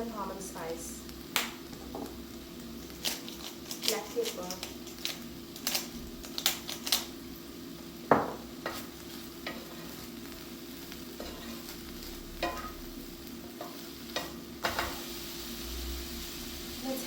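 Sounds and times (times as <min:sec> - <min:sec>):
meat sizzling in a frying pan: 0:00.0 - 0:17.0
utensil tapping and scraping pan: 0:08.1 - 0:10.0, 0:11.2 - 0:11.7.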